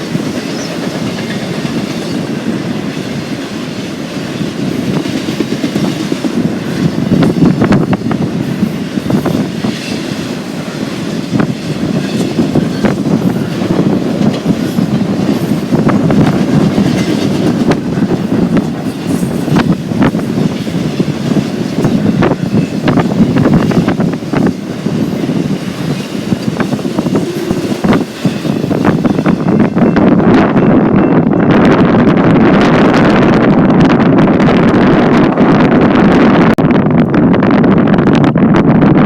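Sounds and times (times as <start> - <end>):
wheels clacking over rail joints: 0.0 - 30.2
freight train rumbling past: 0.0 - 39.0.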